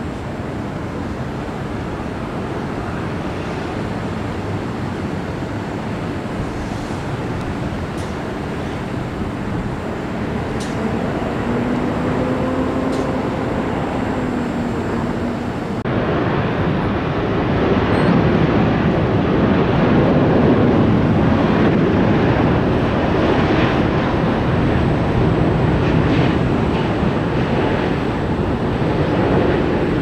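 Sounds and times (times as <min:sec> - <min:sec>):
faint low engine whine: 0:00.0 - 0:17.2
jet engines roaring: 0:00.0 - 0:30.0.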